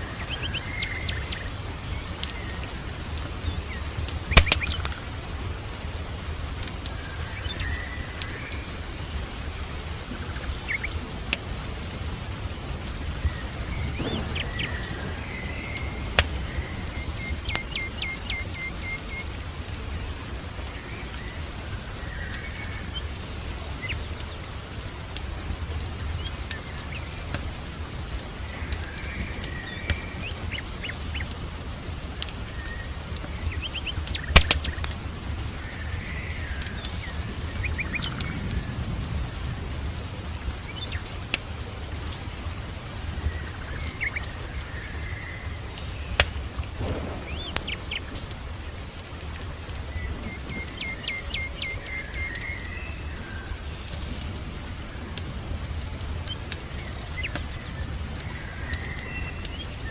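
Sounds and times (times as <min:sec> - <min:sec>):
birds chirping: 0:00.0 - 0:59.9
sharp pops: 0:04.0 - 0:05.0, 0:13.3 - 0:19.8, 0:46.2 - 0:50.6
low rumble: 0:13.4 - 0:17.5, 0:46.6 - 0:49.9.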